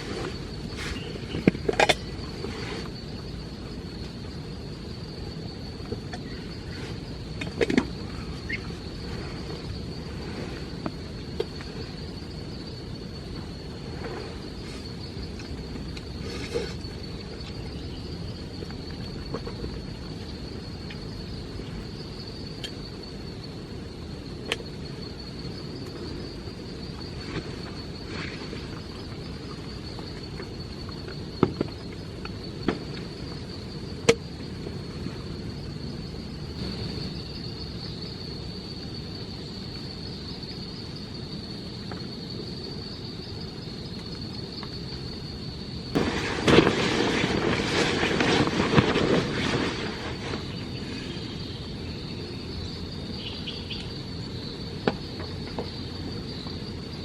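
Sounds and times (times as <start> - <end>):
insects chirring: 0.0 - 57.0
low rumbling noise: 30.5 - 38.9, 45.1 - 53.6.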